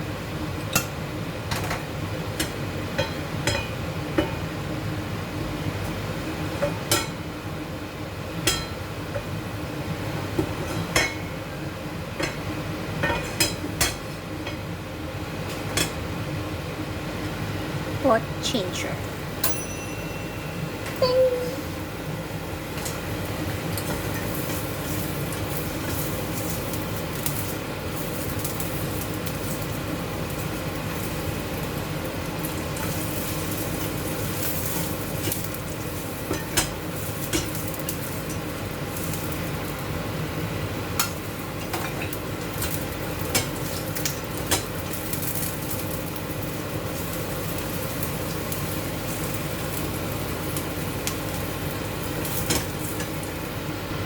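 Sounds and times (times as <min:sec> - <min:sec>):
chicken sizzling in hot oil: 0:21.6 - 0:54.0.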